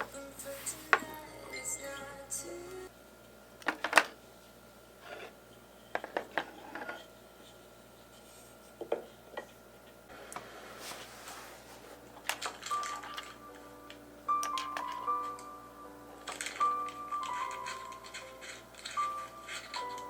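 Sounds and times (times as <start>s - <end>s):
soft rustle: 10.7s - 12.0s.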